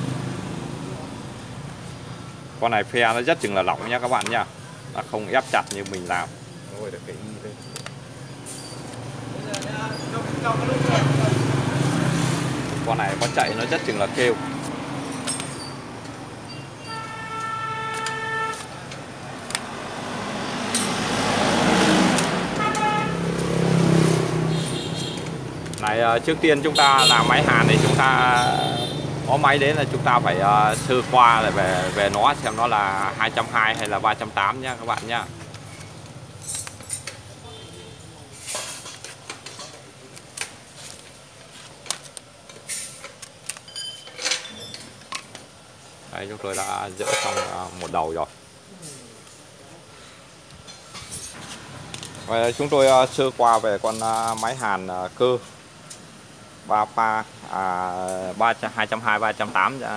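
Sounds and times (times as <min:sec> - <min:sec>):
motor vehicle passing: 0:08.4 - 0:16.4, 0:18.6 - 0:37.1
vehicle horn: 0:16.8 - 0:18.8, 0:22.5 - 0:23.4, 0:24.5 - 0:25.3, 0:26.7 - 0:27.6, 0:28.4 - 0:29.0.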